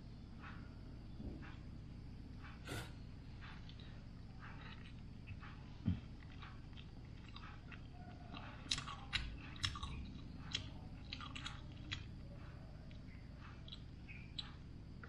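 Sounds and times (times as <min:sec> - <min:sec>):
man chewing food: 0:02.4 - 0:15.0
crunchy crackles: 0:03.4 - 0:15.0.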